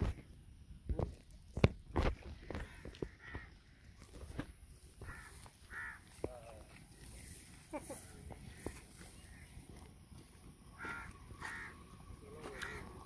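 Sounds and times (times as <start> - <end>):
bird cawing: 2.4 - 4.0, 5.0 - 6.2, 10.6 - 13.0.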